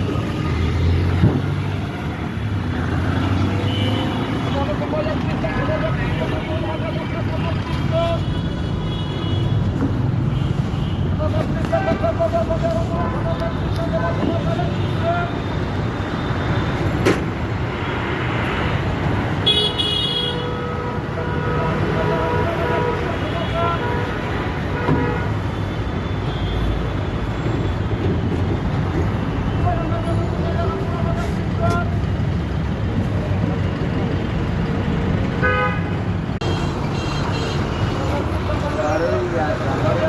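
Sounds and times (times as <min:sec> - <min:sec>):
road traffic rumbling: 0:00.0 - 0:40.0
vehicle horn: 0:19.4 - 0:25.5, 0:35.4 - 0:37.6.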